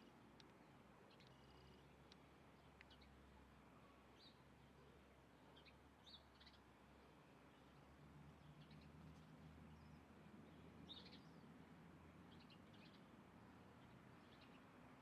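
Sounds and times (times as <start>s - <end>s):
faint bird chirps: 1.1s - 2.0s.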